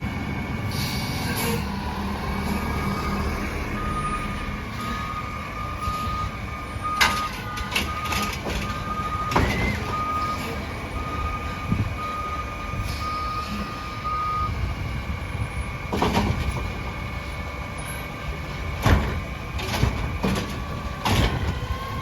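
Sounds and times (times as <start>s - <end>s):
truck engine rumble: 0.0s - 22.0s
reverse alarm beeping: 2.8s - 14.6s.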